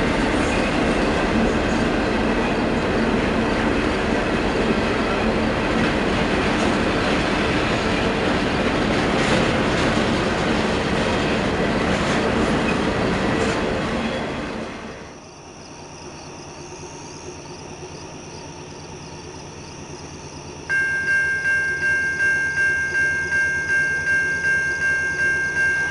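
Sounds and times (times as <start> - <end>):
train wheels clattering on rails: 0.0 - 15.0.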